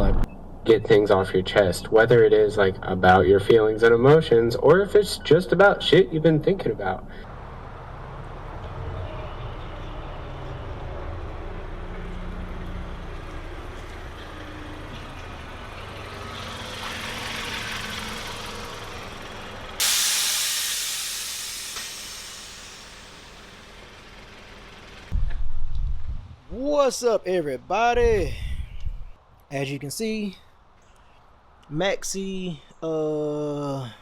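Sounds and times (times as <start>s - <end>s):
car road noise rumble: 7.0s - 25.2s
sudden loud hiss: 19.8s - 24.9s.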